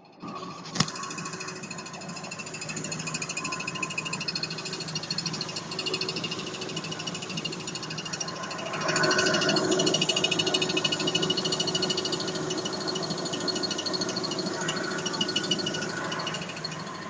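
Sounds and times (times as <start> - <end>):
high chirping whistle: 0.0 - 17.0
car engine running: 0.5 - 17.0.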